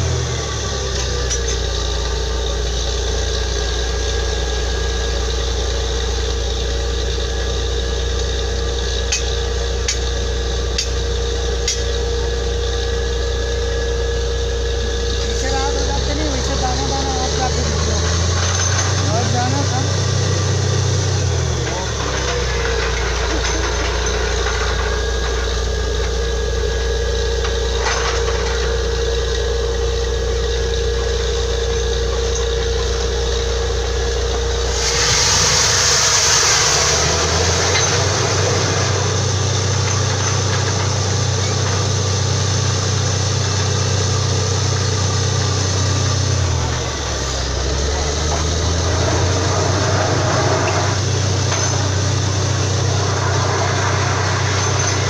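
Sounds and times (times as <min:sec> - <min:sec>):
drilling rig engine running: 0:00.0 - 0:55.0
loud hiss: 0:34.6 - 0:39.8.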